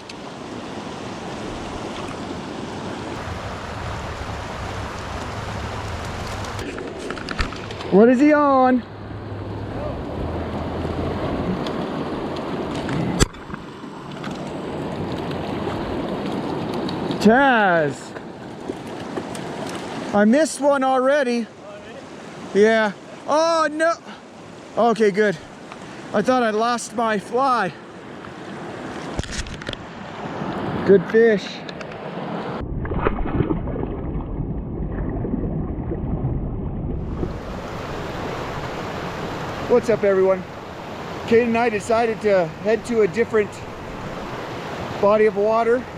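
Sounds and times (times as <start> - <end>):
wind rumbling on microphone: 0.0 - 8.0, 32.0 - 39.7
creek water rushing: 0.0 - 32.6, 37.0 - 45.9.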